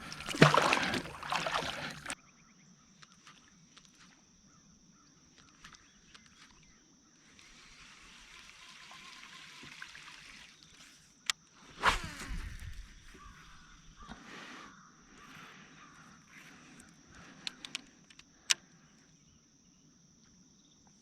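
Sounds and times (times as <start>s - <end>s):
water splashing beside kayak: 0.0s - 2.2s.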